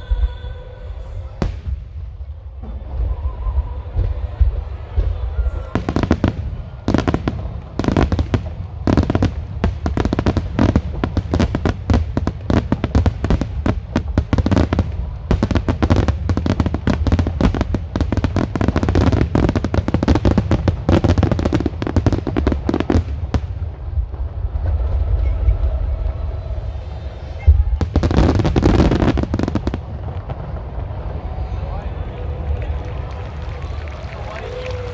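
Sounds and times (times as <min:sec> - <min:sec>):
fireworks bursts and crackles: 0:00.0 - 0:34.9.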